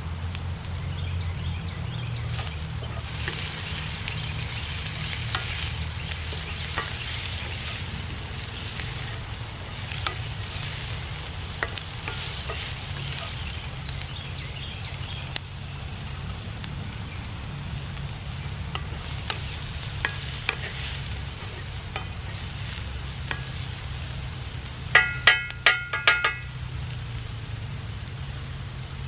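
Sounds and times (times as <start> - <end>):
vegetables sizzling in a skillet: 0.0 - 29.0
spatula tapping and scraping pan: 2.3 - 9.2, 9.8 - 13.8, 18.7 - 22.5, 23.2 - 23.8, 24.9 - 26.7.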